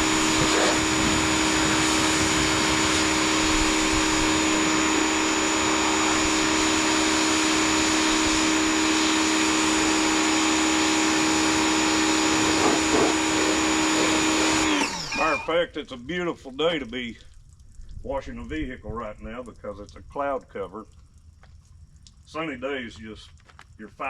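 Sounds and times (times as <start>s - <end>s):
pressure washer motor humming: 0.0s - 15.6s
water spray hissing: 0.0s - 15.6s.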